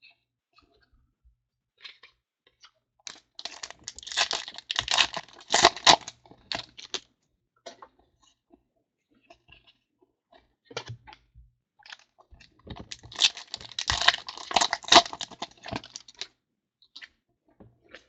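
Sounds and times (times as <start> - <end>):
foil wrapper crinkling and tearing: 3.1 - 7.0, 12.8 - 16.3.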